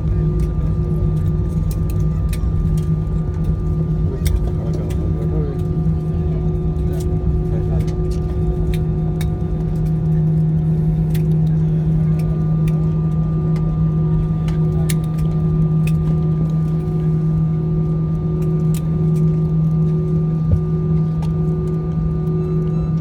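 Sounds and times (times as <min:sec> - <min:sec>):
airliner cabin engine drone: 0:00.0 - 0:23.0
small clicks and rattles: 0:00.3 - 0:05.8.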